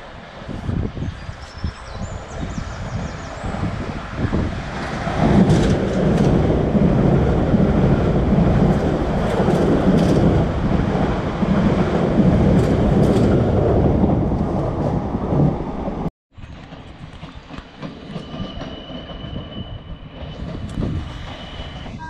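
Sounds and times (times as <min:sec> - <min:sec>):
passenger train rumbling: 0:00.0 - 0:22.0
wheels clicking over track: 0:04.7 - 0:14.9.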